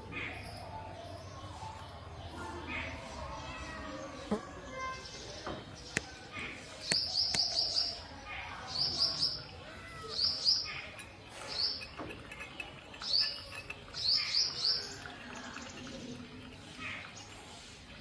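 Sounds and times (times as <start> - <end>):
small bird chirping: 8.7 - 17.4.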